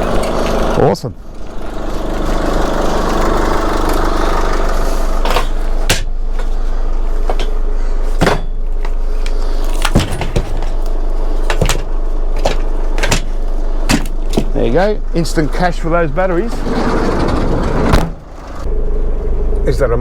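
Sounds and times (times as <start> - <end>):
engine drone: 0.0 - 20.0
scrap knocks and clunks: 1.4 - 14.6.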